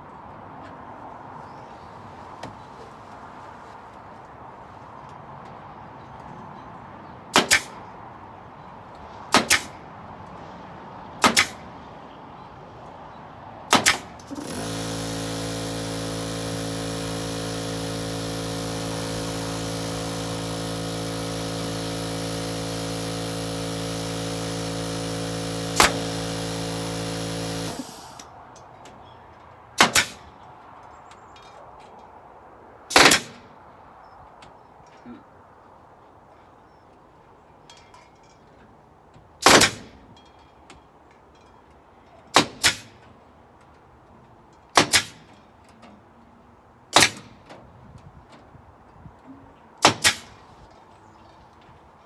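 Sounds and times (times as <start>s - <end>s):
nail gun firing: 7.4s - 7.8s, 9.3s - 9.8s, 11.2s - 11.7s, 13.7s - 28.3s, 29.8s - 30.4s, 32.9s - 33.5s, 39.4s - 40.0s, 42.4s - 43.0s, 44.8s - 45.3s, 46.9s - 47.5s, 49.8s - 50.6s
air compressor running: 13.8s - 28.2s.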